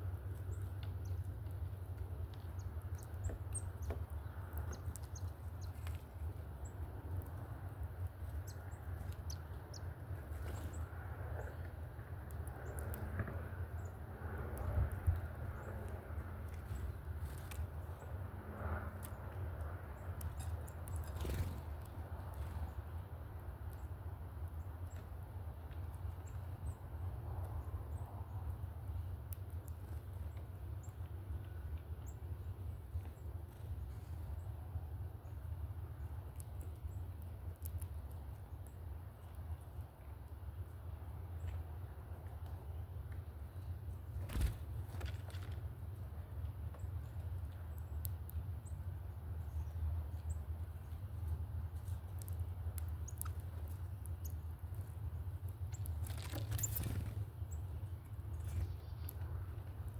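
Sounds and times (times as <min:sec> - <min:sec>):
small birds chipping: 0:00.0 - 0:59.9
steady low rumble: 0:00.0 - 0:59.9.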